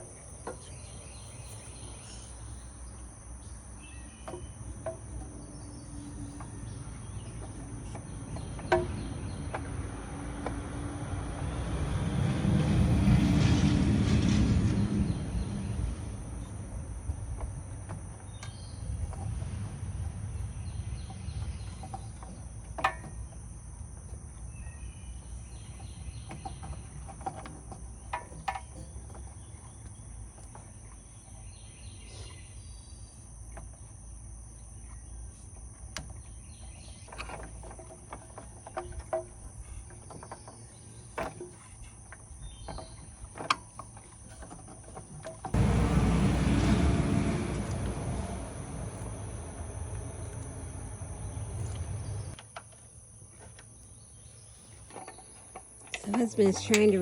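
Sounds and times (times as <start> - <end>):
low rumbling noise: 8.2 - 21.9, 45.6 - 52.4
insects buzzing: 45.5 - 57.0
birds chirping: 45.6 - 52.4.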